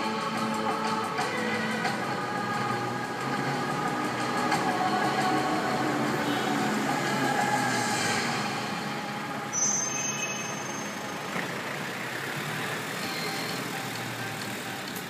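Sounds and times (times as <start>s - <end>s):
large vehicle engine running: 0.0s - 15.0s
street noise: 0.0s - 15.0s
brief high squeal: 9.5s - 11.3s.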